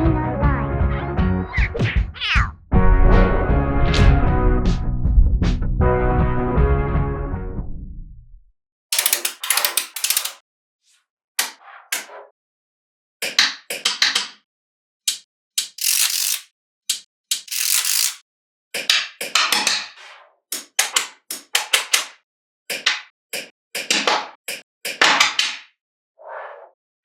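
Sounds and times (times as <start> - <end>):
magnetic balls clicking together: 15.1 - 18.2.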